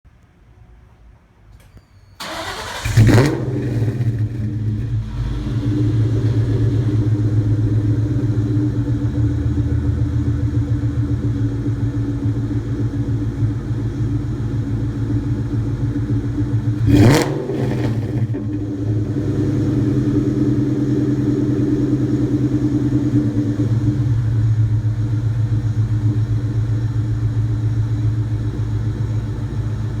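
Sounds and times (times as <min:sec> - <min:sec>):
car engine starting and idling: 0:01.5 - 0:30.0
engine revving: 0:02.2 - 0:11.8, 0:16.2 - 0:24.8.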